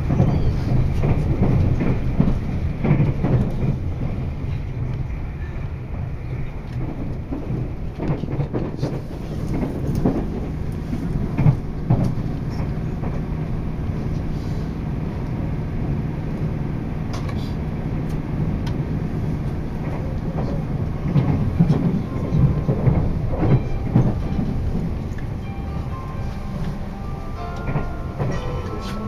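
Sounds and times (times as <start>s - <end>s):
electric train hum: 0.0s - 29.0s
wheels knocking on rail joints: 19.8s - 26.8s.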